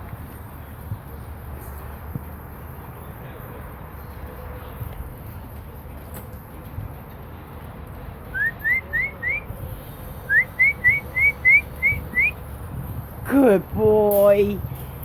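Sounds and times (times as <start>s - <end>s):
short rising whistled notes: 8.3s - 9.5s, 10.3s - 12.4s.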